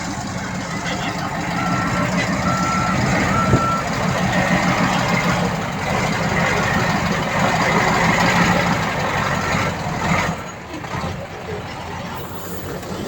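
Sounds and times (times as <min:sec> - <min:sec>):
diesel engine running: 0:00.0 - 0:13.0
reversing alarm beeping: 0:00.3 - 0:05.3.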